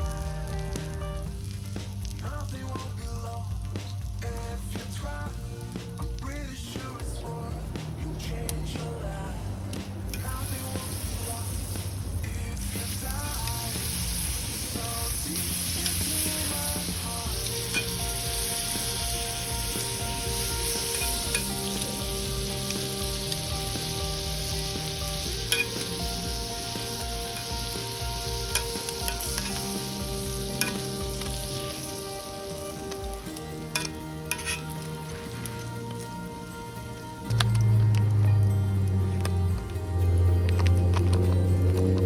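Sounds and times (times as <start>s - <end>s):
food sizzling in a pan: 0.0s - 9.3s, 10.0s - 42.0s.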